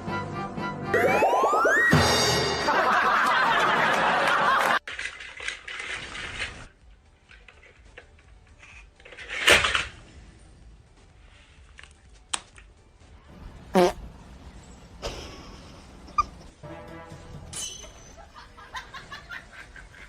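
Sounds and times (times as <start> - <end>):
people laughing: 2.6 - 4.8, 18.0 - 20.0.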